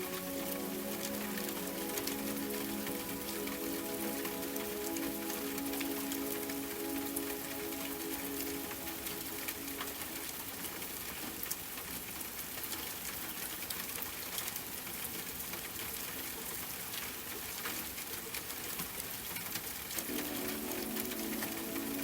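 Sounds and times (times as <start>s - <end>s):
soft sustained music tones: 0.0s - 11.0s, 20.0s - 22.0s
rain falling: 0.0s - 22.0s
raindrops clicking on surface: 0.0s - 22.0s.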